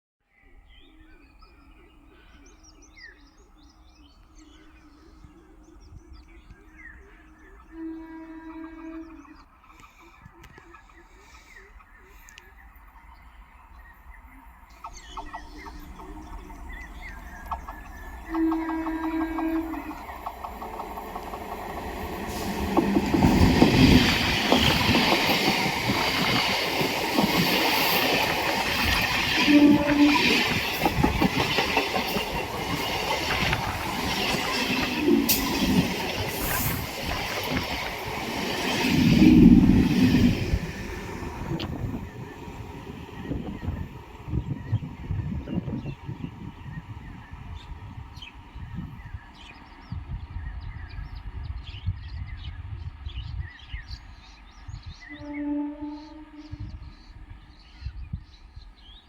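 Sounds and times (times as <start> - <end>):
birds chirping: 0.3 - 59.0
low repeated bird call: 0.9 - 58.7
train wheels rumbling on rails: 9.2 - 55.6
rapid rail clicks: 14.8 - 42.0.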